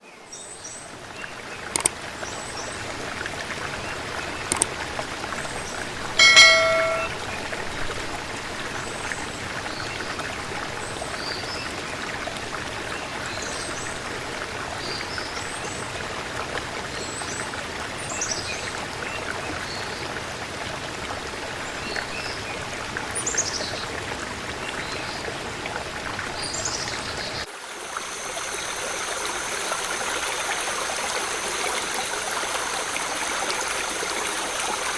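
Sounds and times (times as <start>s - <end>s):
water rushing: 27.5s - 34.9s.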